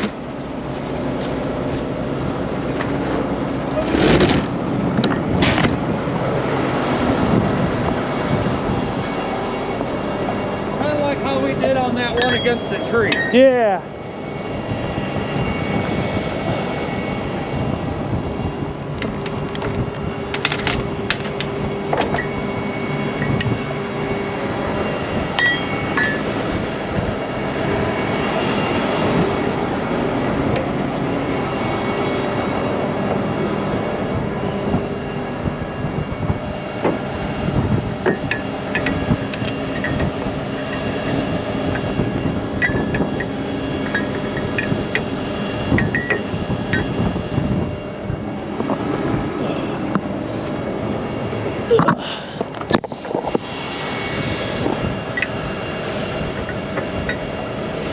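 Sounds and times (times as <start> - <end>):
truck engine running: 0.0 - 57.9
metal chains clinking: 12.2 - 13.4, 19.0 - 21.5.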